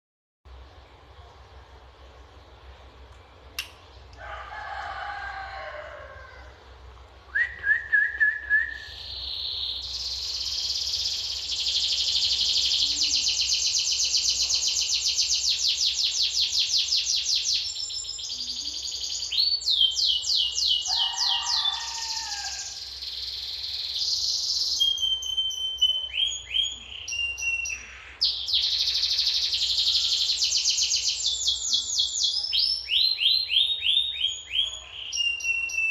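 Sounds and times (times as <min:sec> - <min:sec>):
rooster crowing: 0:04.2 - 0:06.7, 0:20.5 - 0:22.9
canary singing trills: 0:08.5 - 0:35.9.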